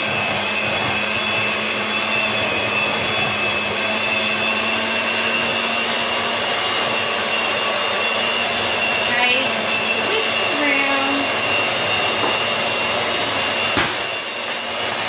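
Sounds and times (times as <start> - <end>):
electric mixer whirring: 0.0 - 15.0.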